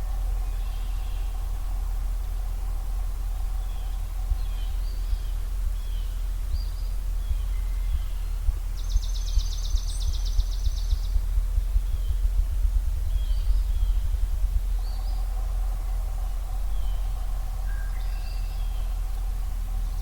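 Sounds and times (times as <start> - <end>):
bird singing a dry rapid trill: 0.0 - 20.0
birds chirping: 0.0 - 20.0
grouse drumming thumps: 0.0 - 20.0.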